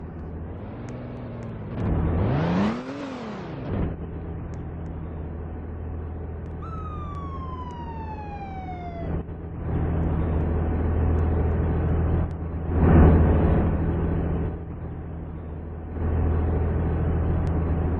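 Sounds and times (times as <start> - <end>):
diesel engine humming: 0.0 - 17.9
fire truck siren wailing: 6.6 - 9.8.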